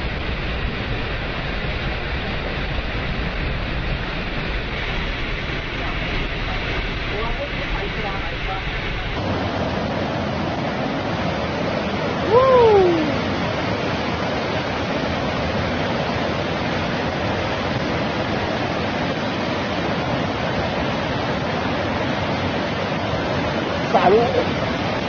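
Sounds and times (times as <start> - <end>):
rushing floodwater roar: 0.0 - 25.0
short cry: 12.2 - 13.2.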